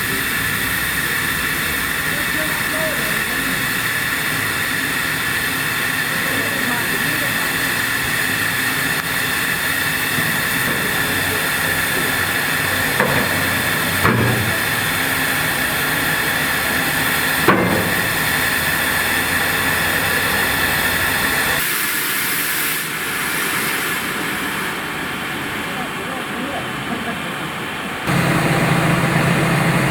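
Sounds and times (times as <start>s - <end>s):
train hissing rush: 0.0s - 29.9s
sharp knocks: 12.9s - 15.4s, 17.4s - 18.4s.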